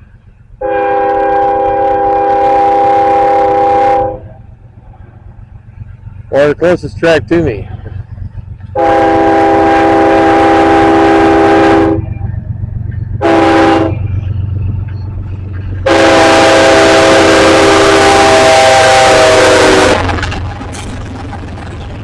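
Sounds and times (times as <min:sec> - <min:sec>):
passing train rumble: 0:00.0 - 0:22.0
locomotive air horn blasts: 0:00.6 - 0:04.4, 0:08.8 - 0:12.1, 0:13.2 - 0:14.1, 0:15.8 - 0:20.1.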